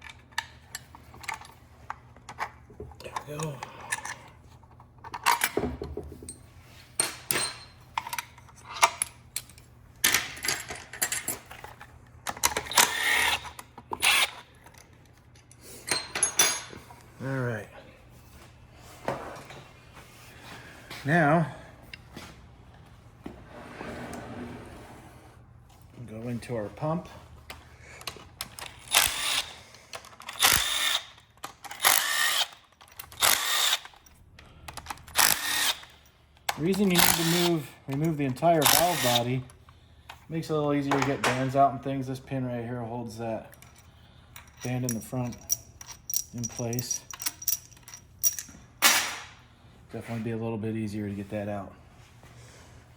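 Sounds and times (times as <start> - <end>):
metal parts clinking: 0.0 - 4.3, 5.0 - 5.6, 7.0 - 17.0, 28.0 - 39.4, 43.5 - 49.4
metal parts rattling: 7.0 - 16.8, 28.0 - 39.4, 43.6 - 49.4
cordless power tool bursts: 28.8 - 29.6, 30.3 - 31.1, 31.8 - 32.6, 33.2 - 33.8.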